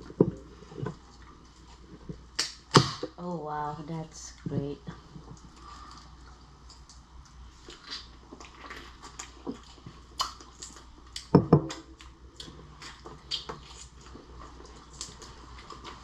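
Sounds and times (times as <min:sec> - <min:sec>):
chewing seafood: 0:00.0 - 0:02.5, 0:05.0 - 0:16.0.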